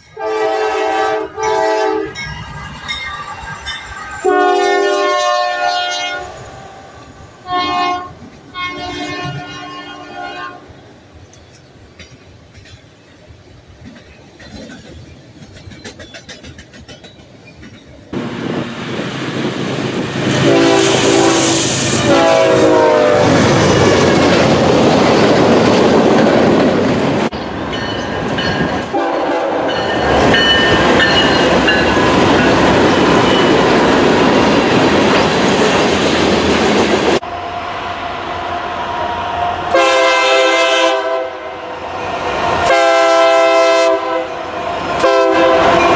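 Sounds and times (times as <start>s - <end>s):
trains rumbling and clattering: 0.0s - 45.9s
train horn: 0.1s - 2.2s, 4.2s - 6.8s, 7.4s - 10.8s, 20.3s - 24.1s, 28.9s - 30.0s, 39.6s - 41.6s, 42.6s - 45.9s.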